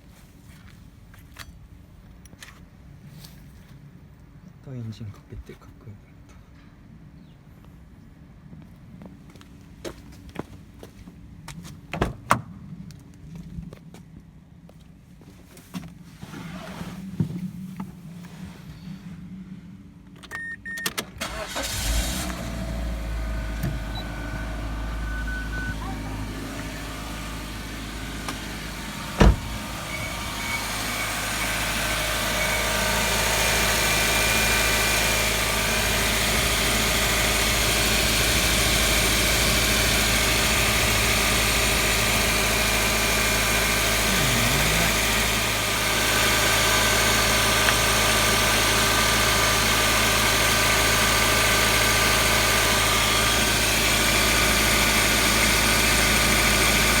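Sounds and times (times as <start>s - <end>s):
car engine starting and idling: 20.1s - 57.0s.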